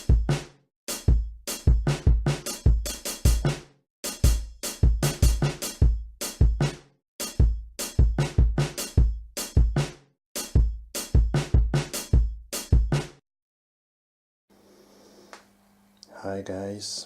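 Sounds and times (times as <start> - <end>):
drum beat with heavy kick: 0.0 - 13.2.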